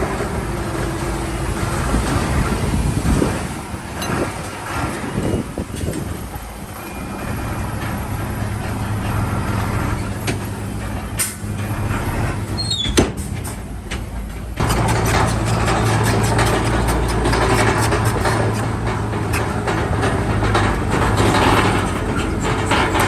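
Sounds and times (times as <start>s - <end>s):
heavy diesel engine running: 0.0s - 23.0s
short falling squeal: 12.6s - 13.0s.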